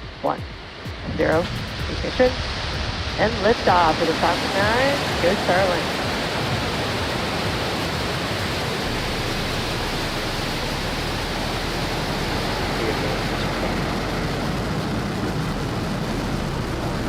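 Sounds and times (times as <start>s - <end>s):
rocket engines roaring: 0.0s - 17.0s.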